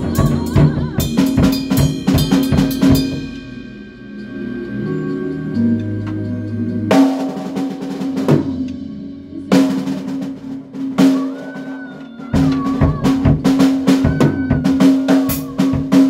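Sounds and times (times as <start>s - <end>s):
bass and guitar chords: 0.0s - 11.1s
drum kit playing: 0.0s - 16.0s.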